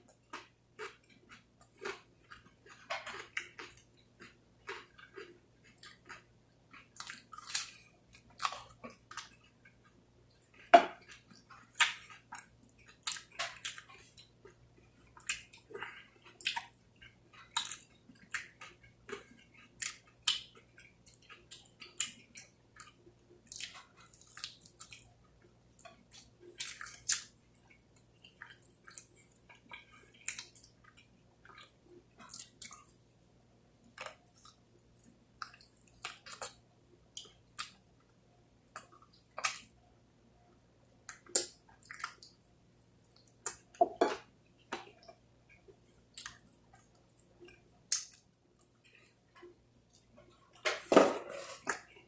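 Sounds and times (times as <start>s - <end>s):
chewing and biting food: 0.0s - 33.1s.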